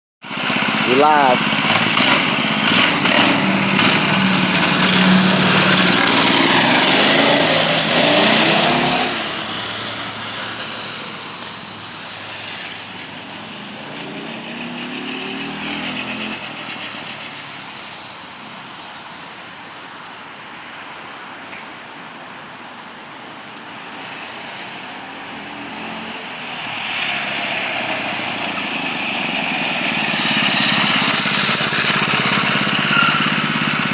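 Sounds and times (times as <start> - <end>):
minibike engine revving: 0.2 - 9.6, 13.5 - 17.2, 27.8 - 33.9.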